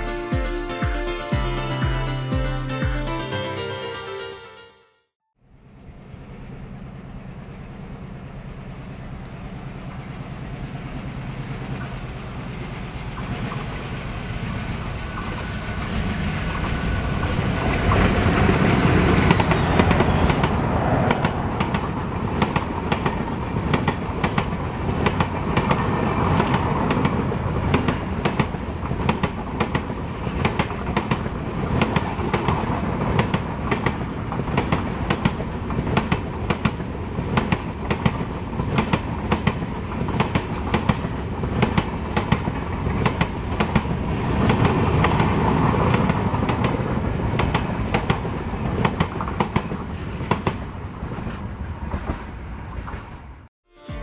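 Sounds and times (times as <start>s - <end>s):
diesel locomotive engine rumble: 5.4s - 53.5s
train wheels clickety-clack: 11.0s - 53.4s.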